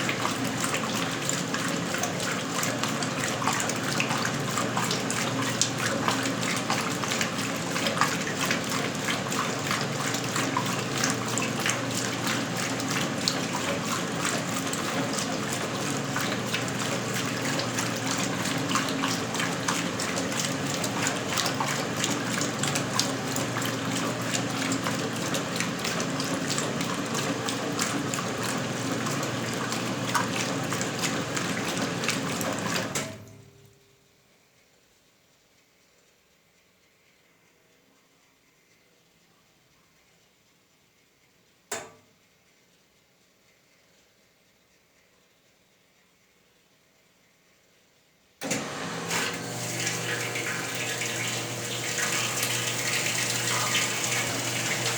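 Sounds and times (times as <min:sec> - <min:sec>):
water gushing in washing machine: 0:00.0 - 0:33.5, 0:48.4 - 0:54.9
washing machine motor hum: 0:00.0 - 0:33.7, 0:48.4 - 0:54.9.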